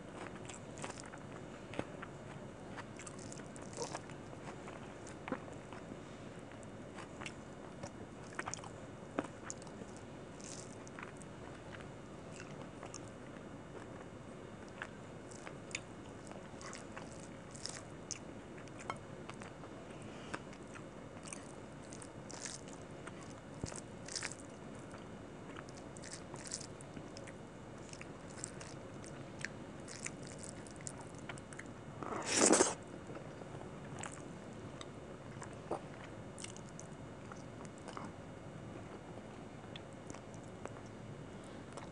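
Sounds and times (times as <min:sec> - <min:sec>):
chewing mouth sounds: 0:02.8 - 0:04.2, 0:08.3 - 0:11.8, 0:14.6 - 0:19.6, 0:20.5 - 0:31.7, 0:35.3 - 0:38.1.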